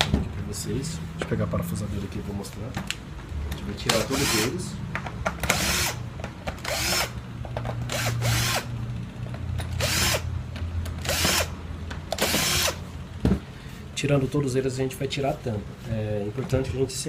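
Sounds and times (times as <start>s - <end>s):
electric screwdriver running: 3.9s - 4.5s, 5.4s - 6.0s, 6.6s - 7.2s, 7.9s - 8.7s, 9.7s - 10.3s, 11.0s - 11.5s, 12.1s - 12.8s.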